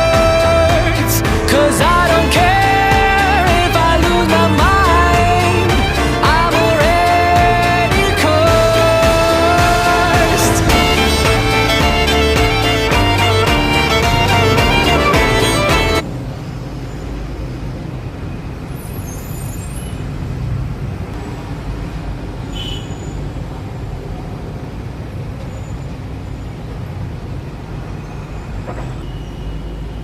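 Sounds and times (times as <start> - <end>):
music: 0.0 - 16.0.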